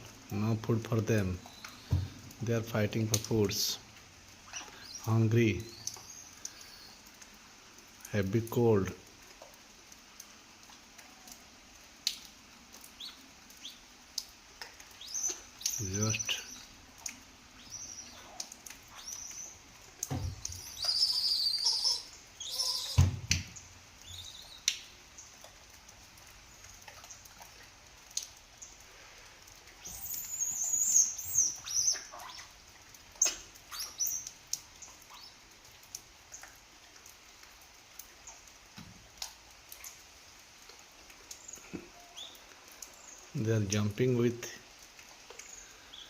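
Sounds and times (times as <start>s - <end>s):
animal chirps and squeals: 17.6s - 19.6s, 20.5s - 23.1s, 29.8s - 32.5s, 33.2s - 34.3s.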